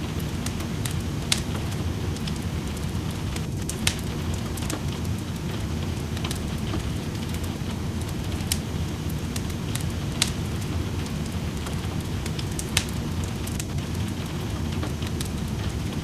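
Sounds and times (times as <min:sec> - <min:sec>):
steady rain: 0:00.0 - 0:16.0
wood fire crackling and popping: 0:00.0 - 0:16.0.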